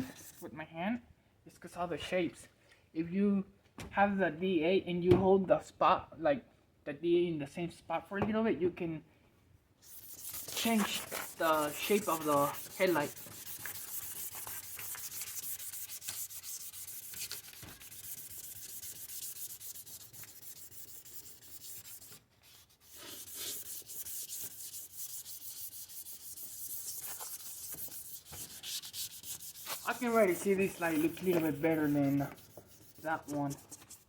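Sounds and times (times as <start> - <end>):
sandpaper rasping on plastic: 9.8 - 34.0.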